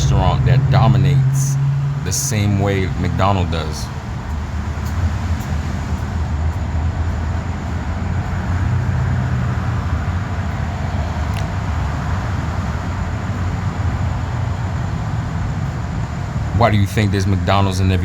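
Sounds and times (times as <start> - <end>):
road vehicle rumble: 0.0 - 18.0.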